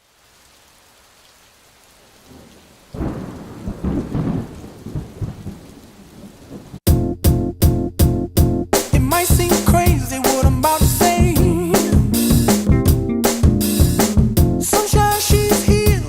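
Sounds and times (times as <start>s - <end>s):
steady rain falling: 0.0s - 6.8s, 13.7s - 16.0s
rumble of thunder: 2.2s - 6.8s
music with strong beat: 6.9s - 16.0s.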